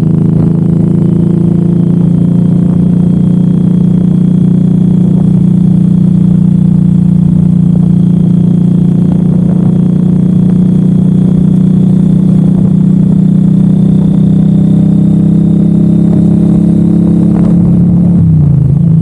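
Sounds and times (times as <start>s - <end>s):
motorcycle engine running steadily: 0.0s - 19.0s.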